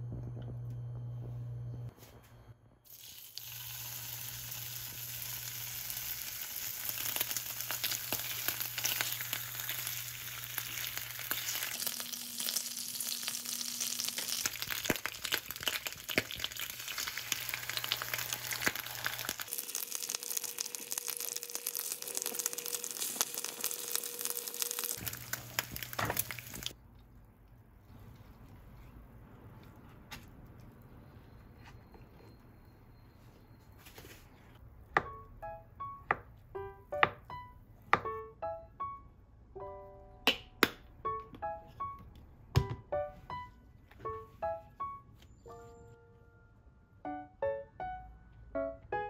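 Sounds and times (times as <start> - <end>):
food sizzling in a pan: 2.9 - 26.8.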